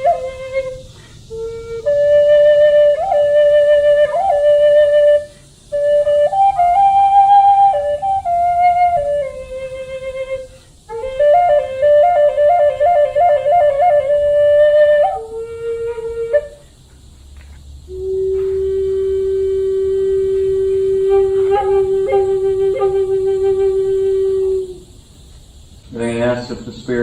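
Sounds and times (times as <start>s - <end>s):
flute playing slow melody: 0.0s - 16.8s, 17.8s - 25.0s.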